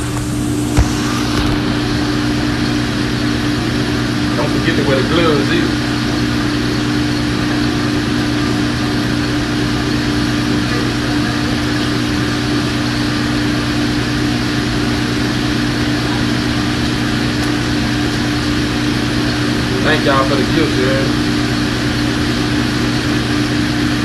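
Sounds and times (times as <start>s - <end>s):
kitchen ventilation fan humming: 0.0s - 24.0s.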